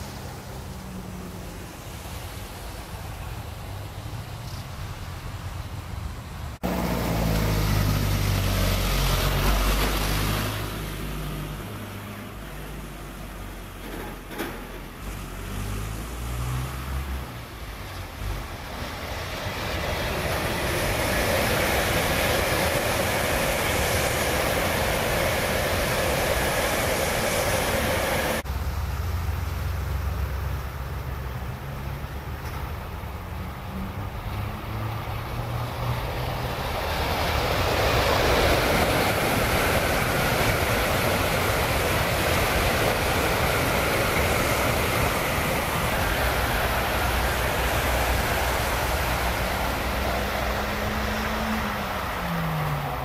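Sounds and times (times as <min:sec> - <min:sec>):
high-speed train rushing past: 0:00.0 - 0:29.4, 0:30.1 - 0:53.0.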